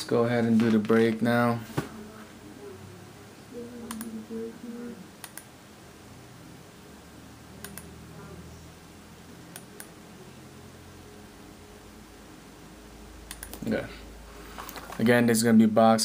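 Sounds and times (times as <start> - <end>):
low room noise: 0.0 - 16.0
computer mouse clicking: 3.8 - 4.2, 5.2 - 5.5, 7.6 - 8.0, 13.3 - 13.7.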